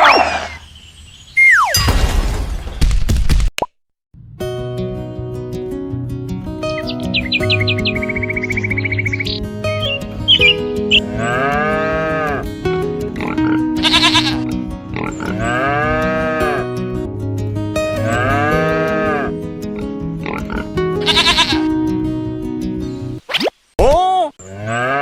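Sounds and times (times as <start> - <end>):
background music: 4.2 - 23.2
short quavering animal calls: 13.2 - 14.4.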